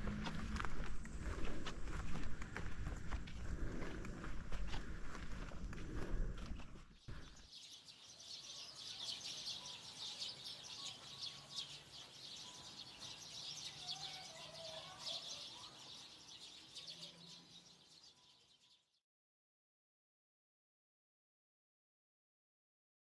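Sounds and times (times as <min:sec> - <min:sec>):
birds rapid high chatter: 0:07.2 - 0:18.7.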